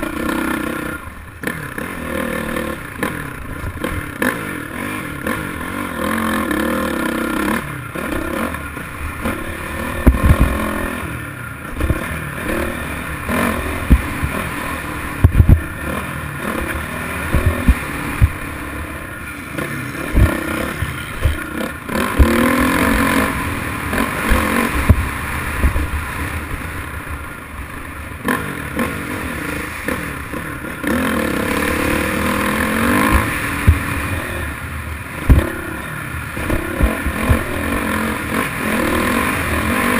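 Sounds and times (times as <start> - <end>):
motocross bike engine revving: 0.0 - 39.9
low thumps: 15.1 - 15.8, 16.6 - 18.6
clatter: 35.2 - 39.9.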